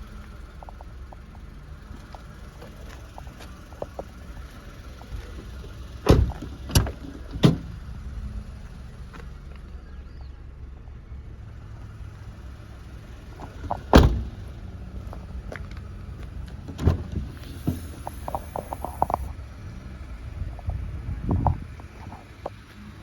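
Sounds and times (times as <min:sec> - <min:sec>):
low steady rumble: 0:00.0 - 0:23.0
car door shutting: 0:06.0 - 0:07.8, 0:13.3 - 0:14.6, 0:16.5 - 0:19.3.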